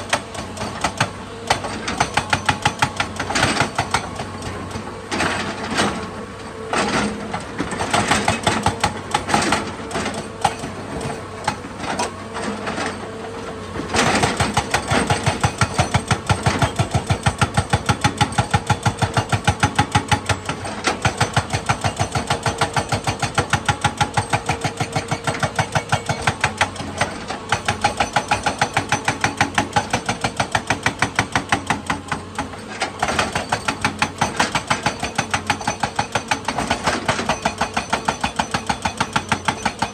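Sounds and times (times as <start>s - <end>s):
excavator diesel engine clattering: 0.0s - 39.9s.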